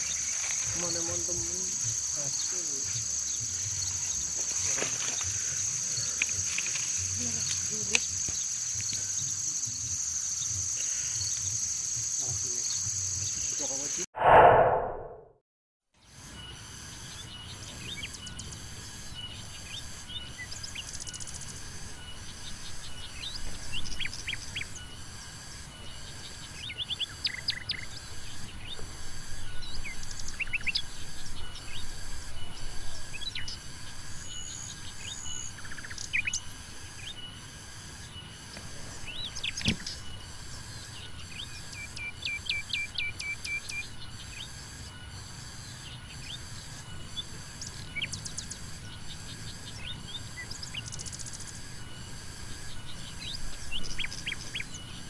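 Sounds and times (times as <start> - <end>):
pulsing insect buzz: 0.0 - 14.0, 16.1 - 55.0
small birds chirping: 0.0 - 14.0, 16.3 - 55.0.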